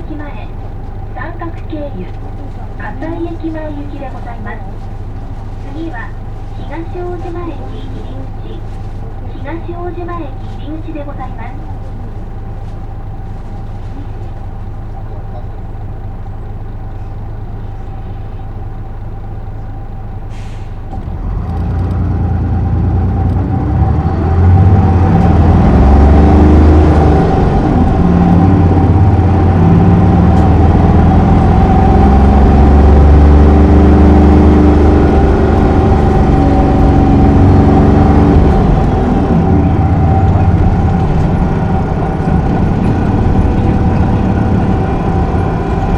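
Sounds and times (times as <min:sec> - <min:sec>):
bus diesel engine: 0:00.0 - 0:45.9
short air hiss: 0:20.3 - 0:20.8.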